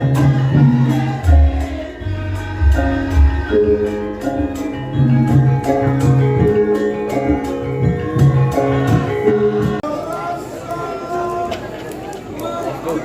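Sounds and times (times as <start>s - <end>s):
live band music: 0.0s - 9.8s
percussion beat: 0.0s - 9.8s.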